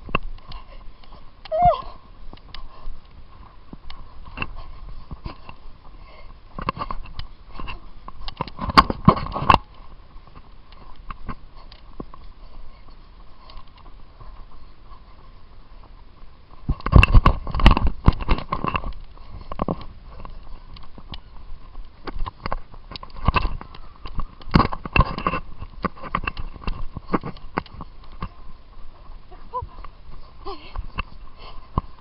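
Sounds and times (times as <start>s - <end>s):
handheld camera thumps and rubbing: 0.0s - 32.0s
running footfalls: 0.0s - 32.0s.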